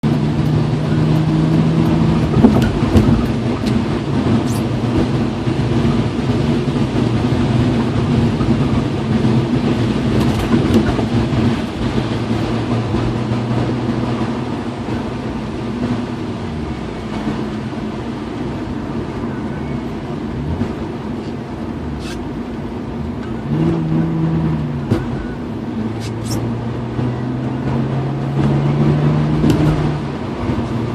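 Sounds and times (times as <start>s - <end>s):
car engine while driving: 0.0s - 30.9s
rain and wet road rushing: 0.0s - 30.9s
short high squeaks: 21.2s - 22.3s, 26.0s - 26.5s.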